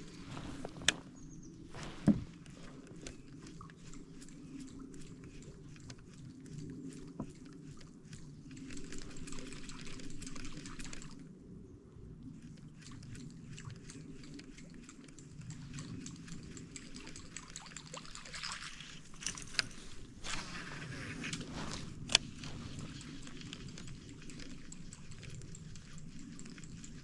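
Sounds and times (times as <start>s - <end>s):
light clicks and handling knocks: 0.0s - 3.9s
water trickling and lapping: 0.0s - 27.0s.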